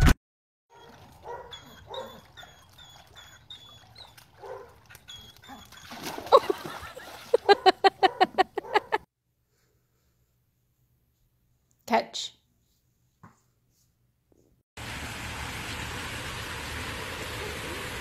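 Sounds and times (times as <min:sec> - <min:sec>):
dog whimpering: 0:01.3 - 0:04.2, 0:05.0 - 0:06.2.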